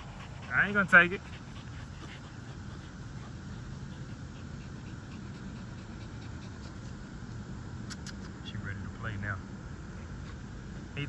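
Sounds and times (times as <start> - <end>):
puppy panting: 0.0 - 8.4
steady low hum: 0.0 - 11.0.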